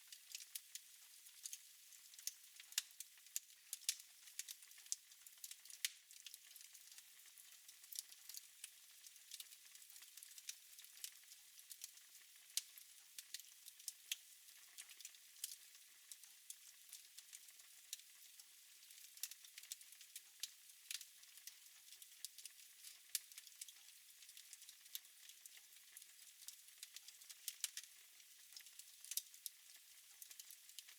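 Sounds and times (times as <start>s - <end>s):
wood fire crackling and hissing: 0.0s - 30.9s.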